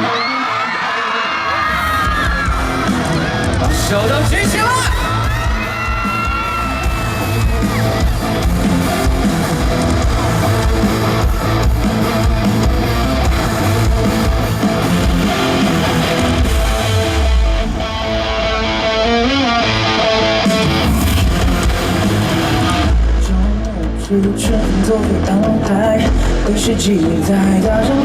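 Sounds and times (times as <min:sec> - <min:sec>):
rock band playing: 0:00.0 - 0:28.0
guitar strumming: 0:02.3 - 0:23.8.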